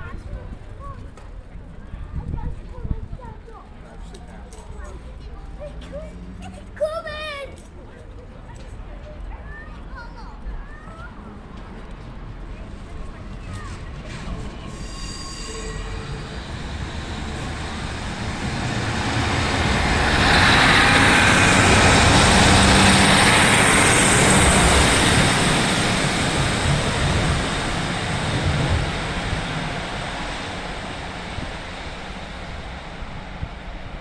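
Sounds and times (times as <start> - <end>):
diesel train engines: 8.6 - 34.0
train wheels on rails: 10.7 - 34.0.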